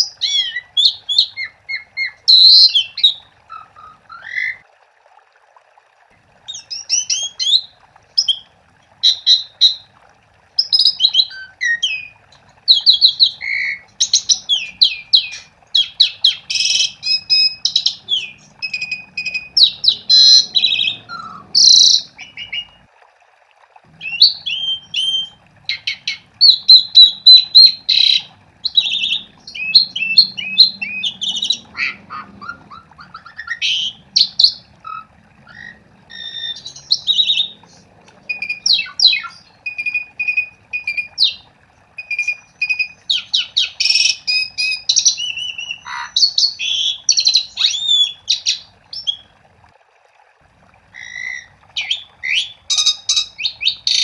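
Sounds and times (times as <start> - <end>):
starling song whistles and clicks: 12.7 - 22.8, 24.1 - 35.0, 35.6 - 41.4, 42.0 - 49.2.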